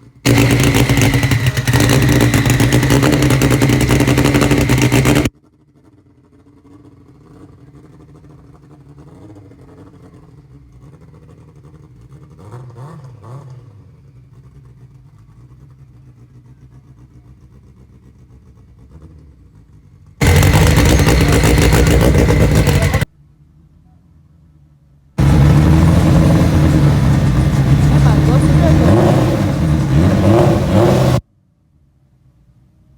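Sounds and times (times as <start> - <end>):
vehicle engines running: 0.1 - 23.1, 25.2 - 31.2
loud abrupt noise: 0.3 - 5.3, 20.2 - 23.1, 25.2 - 31.2.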